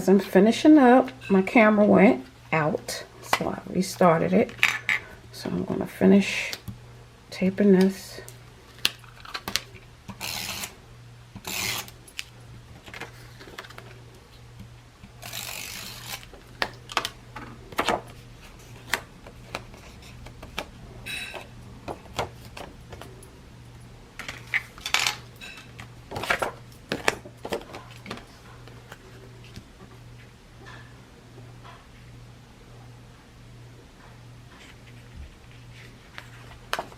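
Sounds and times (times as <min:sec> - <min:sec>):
faint steady hum: 0:00.0 - 0:36.9
paper and card rustling: 0:11.4 - 0:14.0, 0:15.2 - 0:20.7, 0:34.5 - 0:36.9
tape being pulled: 0:15.2 - 0:16.3.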